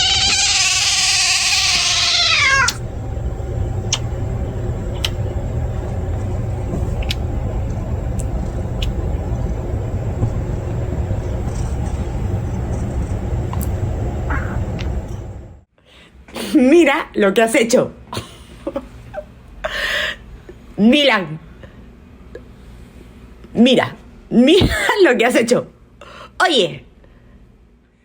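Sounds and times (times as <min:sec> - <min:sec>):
cat yowling: 0:00.0 - 0:02.8, 0:14.3 - 0:14.8
low rumble: 0:02.7 - 0:15.7.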